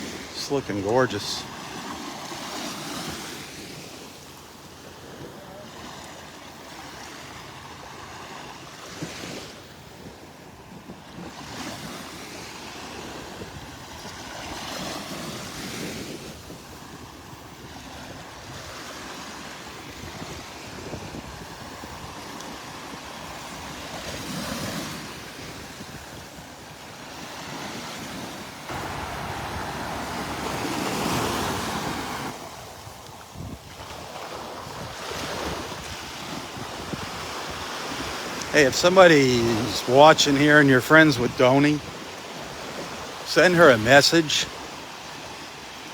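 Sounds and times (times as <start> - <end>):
surf washing onto beach: 0.0 - 45.9
wind buffeting microphone: 19.4 - 26.7, 27.4 - 38.9.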